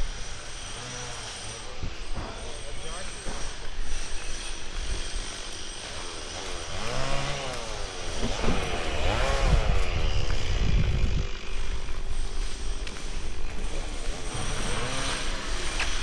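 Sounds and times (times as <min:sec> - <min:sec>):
motor engine running: 0:00.0 - 0:16.0
wind buffeting microphone: 0:07.7 - 0:16.0.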